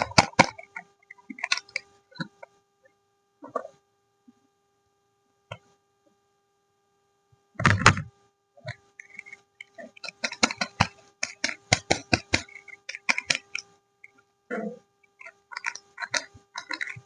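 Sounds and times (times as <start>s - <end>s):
crackles and taps of packaging: 9.0s - 13.6s
soap packaging crinkling: 15.2s - 17.0s.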